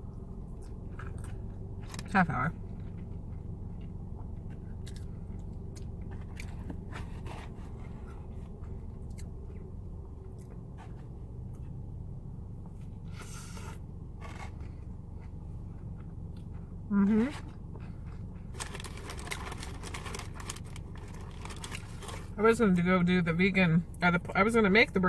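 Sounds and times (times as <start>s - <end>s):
steady low hum: 0.0s - 25.0s
close-up chewing: 0.5s - 11.8s, 17.5s - 22.4s
rustling scrape: 6.8s - 8.7s, 13.1s - 14.9s, 17.2s - 22.4s.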